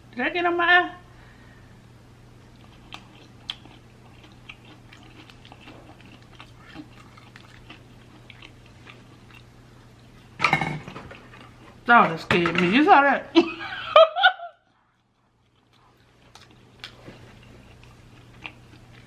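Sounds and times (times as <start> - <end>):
chewing with mouth clicks: 2.4 - 10.4, 14.6 - 19.0.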